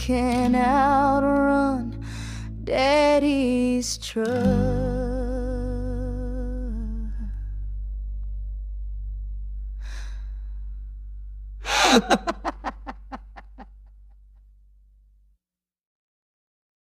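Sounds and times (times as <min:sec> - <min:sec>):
person breathing in: 0:02.0 - 0:02.6, 0:09.7 - 0:10.9, 0:11.6 - 0:12.3
person laughing: 0:11.7 - 0:13.7.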